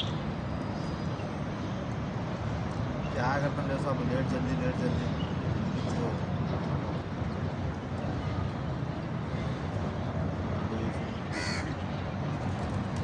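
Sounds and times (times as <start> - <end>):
bird harsh call: 11.3 - 11.8.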